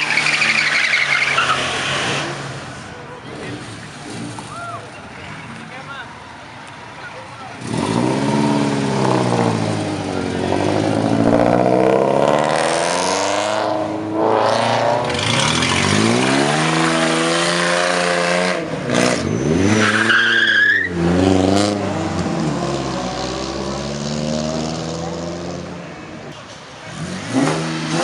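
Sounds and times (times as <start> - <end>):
car engine revving: 7.6 - 25.8.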